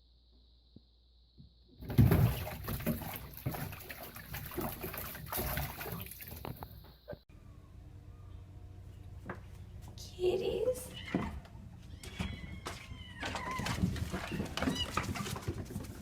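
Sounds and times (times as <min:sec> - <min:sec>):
water splashing and running: 0:01.8 - 0:06.9, 0:13.5 - 0:16.0.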